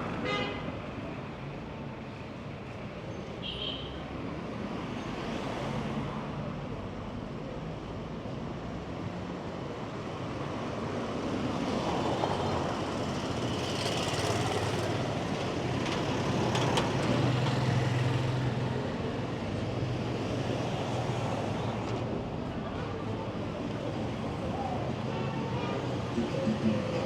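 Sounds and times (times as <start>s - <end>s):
vehicle engines humming: 23.4s - 27.0s.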